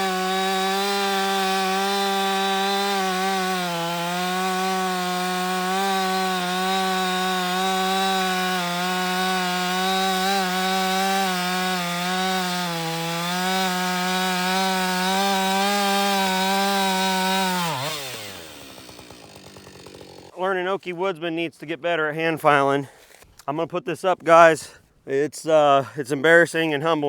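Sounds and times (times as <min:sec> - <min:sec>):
chainsaw cutting wood: 0:00.0 - 0:20.4.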